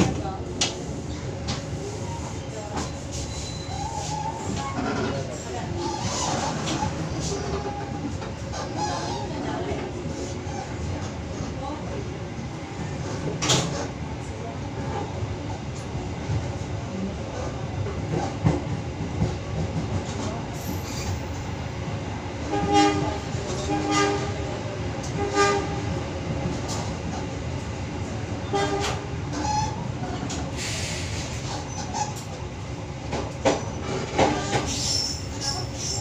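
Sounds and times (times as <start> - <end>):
train rumble with wheel clicks: 0.0 - 36.0
train horn blasts: 22.5 - 24.4, 25.2 - 25.8, 28.5 - 29.0.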